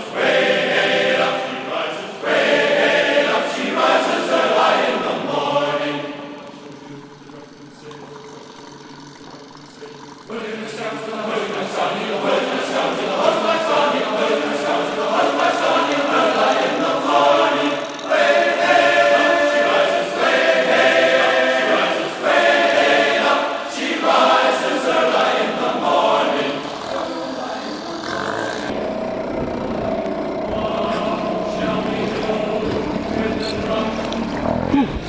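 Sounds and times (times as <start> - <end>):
choir singing long notes: 0.0 - 35.0.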